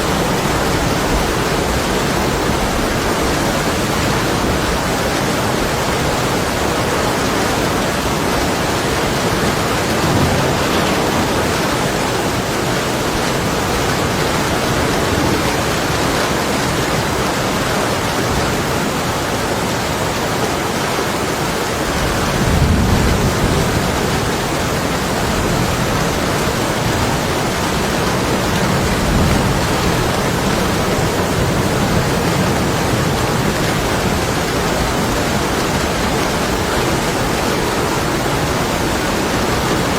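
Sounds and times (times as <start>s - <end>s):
heavy rain on window glass: 0.0s - 39.9s
distant thunder rumbling: 9.0s - 16.3s.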